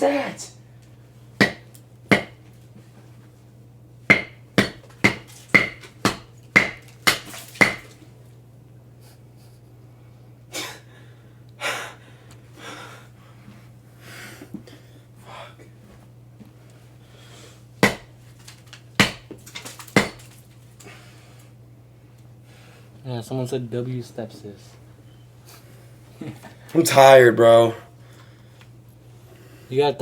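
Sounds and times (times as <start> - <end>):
heavy tired breathing: 10.5 - 15.8.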